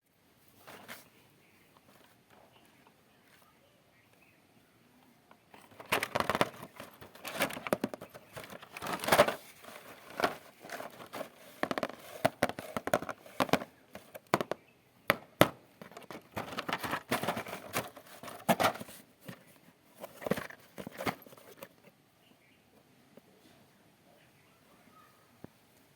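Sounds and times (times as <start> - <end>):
plastic packaging crinkling: 5.6 - 14.1.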